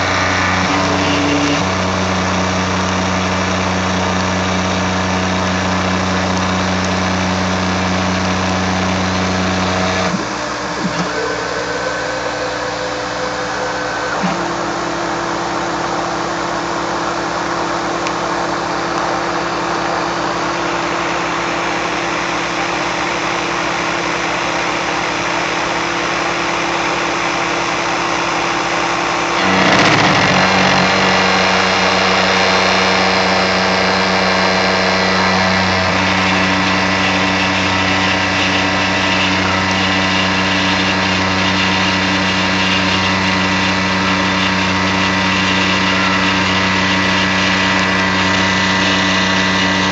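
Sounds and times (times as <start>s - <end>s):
mill cutting steel: 0.0s - 49.9s.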